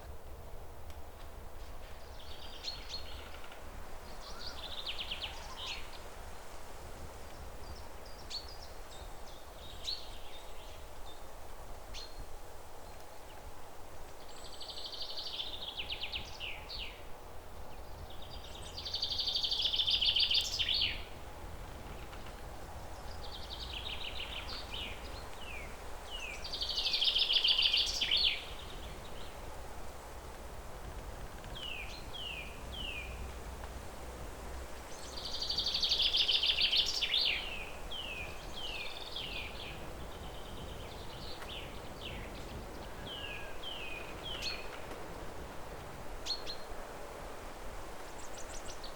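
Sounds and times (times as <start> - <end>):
songbird singing: 1.6 - 6.2, 7.2 - 13.4, 14.1 - 46.9, 47.9 - 48.9
low outdoor rumble: 19.8 - 26.9.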